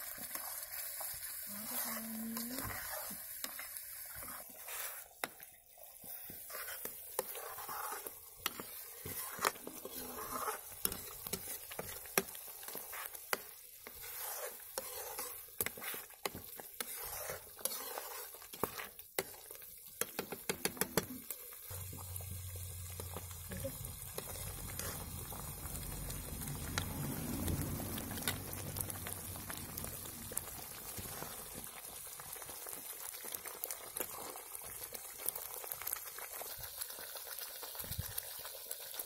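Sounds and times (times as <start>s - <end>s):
paste sizzling in a pan: 0.0s - 39.0s
metal ladle scraping a pan: 1.5s - 21.0s, 24.2s - 25.9s.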